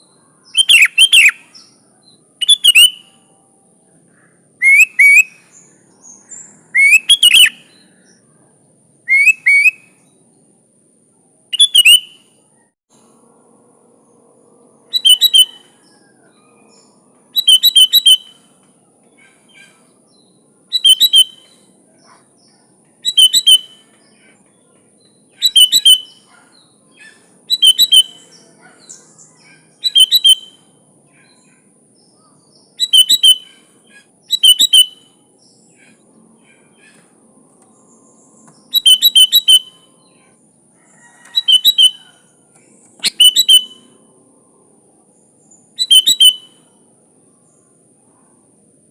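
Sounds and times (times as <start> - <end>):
bird singing short phrases: 0.0 - 3.2, 4.3 - 8.2, 9.1 - 10.2, 11.5 - 12.4, 14.9 - 16.0, 16.7 - 18.5, 19.3 - 37.1, 37.8 - 40.4, 42.9 - 44.0, 45.5 - 46.8.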